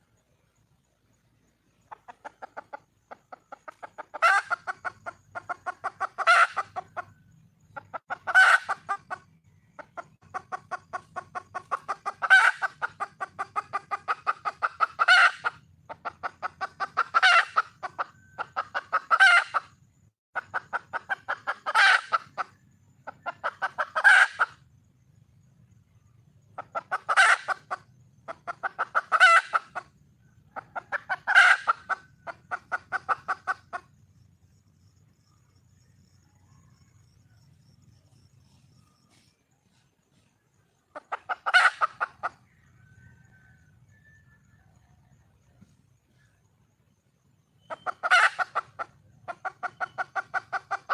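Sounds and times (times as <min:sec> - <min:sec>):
hen clucking: 0:01.7 - 0:19.8, 0:20.4 - 0:24.6, 0:26.3 - 0:34.1, 0:38.0 - 0:44.0, 0:47.6 - 0:50.9.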